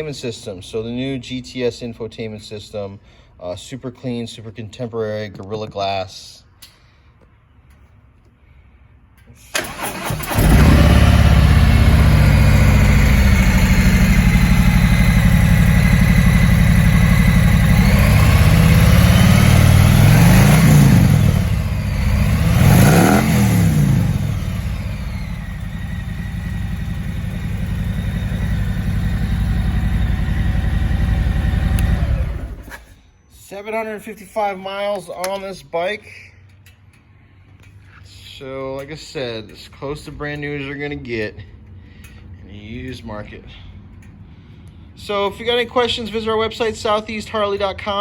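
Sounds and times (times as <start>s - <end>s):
starter cranking: 9.5s - 13.5s
motorcycle engine idling and revving: 9.6s - 32.9s.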